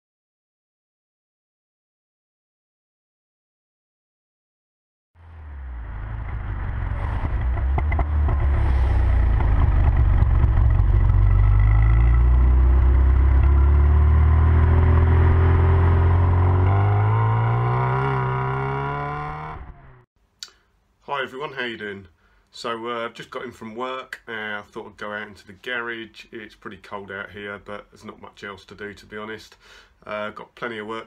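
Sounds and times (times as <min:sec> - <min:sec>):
car engine and exhaust accelerating: 0:05.2 - 0:20.0.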